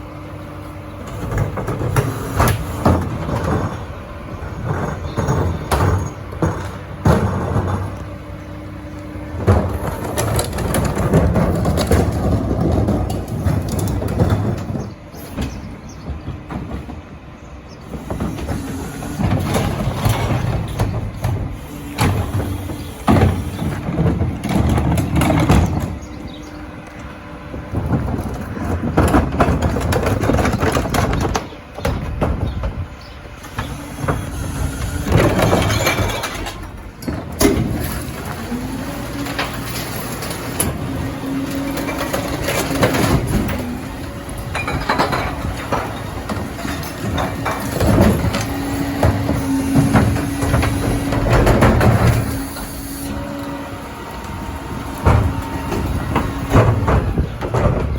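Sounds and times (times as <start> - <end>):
truck engine running: 0.0 - 57.9
recyclables crashing into hopper: 1.0 - 8.4, 9.2 - 17.1, 17.8 - 26.6, 27.2 - 57.9.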